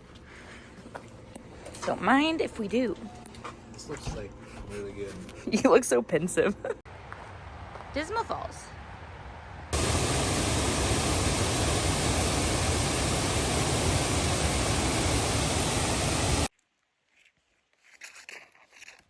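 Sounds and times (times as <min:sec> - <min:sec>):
waterfall rushing: 0:09.8 - 0:16.5.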